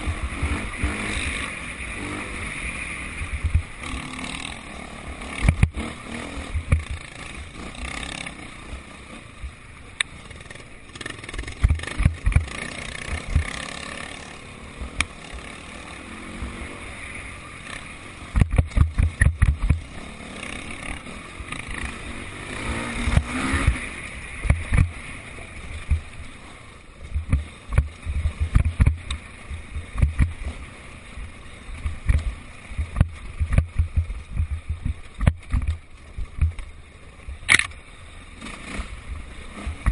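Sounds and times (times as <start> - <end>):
distant motorbike engines: 0.0 - 39.9
low thumps on microphone: 3.3 - 3.7, 6.6 - 7.0, 11.6 - 12.5, 18.4 - 19.8, 25.8 - 26.1, 27.1 - 30.4, 31.8 - 36.6.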